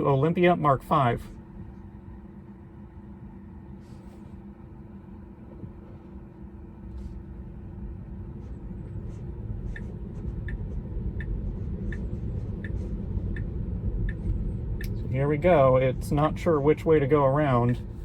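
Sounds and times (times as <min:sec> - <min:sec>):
light ticking: 0:11.2 - 0:15.1.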